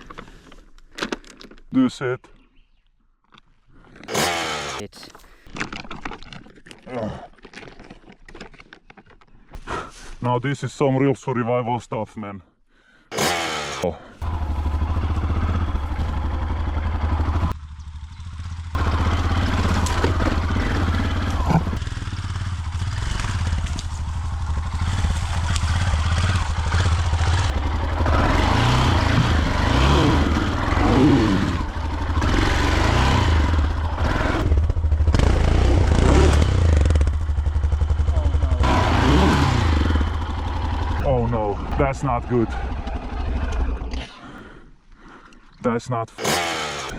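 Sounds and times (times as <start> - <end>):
dirt bike engine revving: 4.1 - 4.8, 13.1 - 44.0, 46.2 - 46.9.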